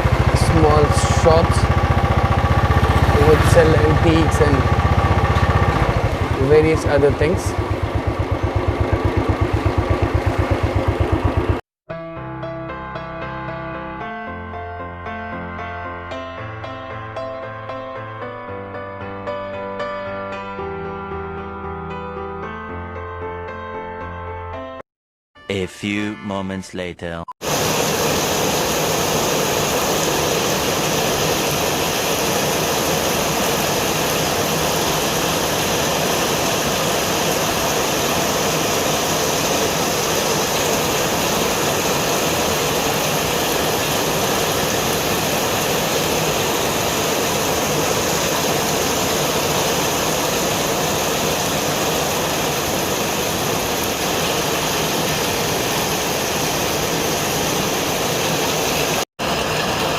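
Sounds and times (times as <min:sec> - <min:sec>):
rain: 0:00.0 - 0:07.9, 0:27.4 - 0:59.9
motorcycle running: 0:00.0 - 0:11.6, 0:28.2 - 0:58.2.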